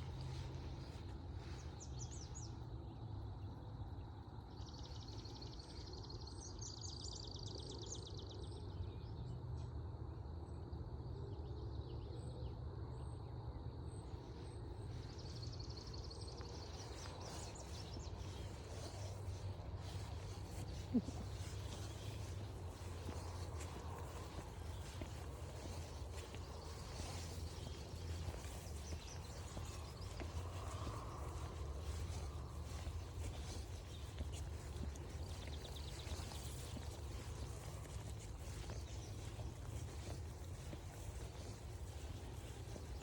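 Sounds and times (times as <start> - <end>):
faint chirps: 14.8 - 43.0.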